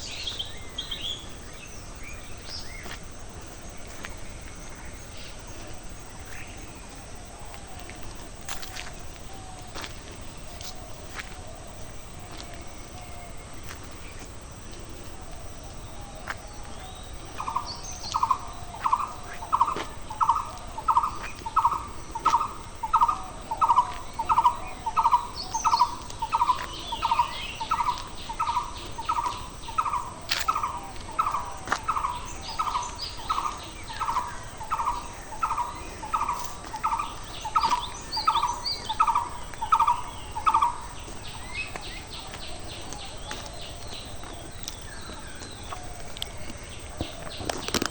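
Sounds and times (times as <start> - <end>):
distant bird chirps: 11.4 - 47.9.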